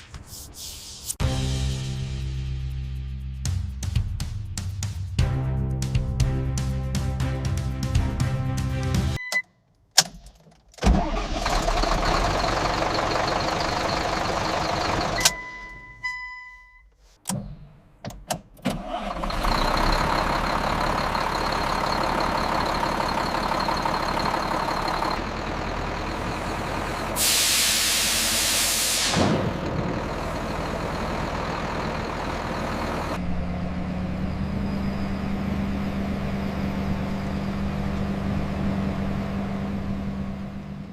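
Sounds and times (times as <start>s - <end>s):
diesel engine running: 10.9s - 15.6s, 18.8s - 40.9s
loud hiss of air: 27.1s - 29.4s.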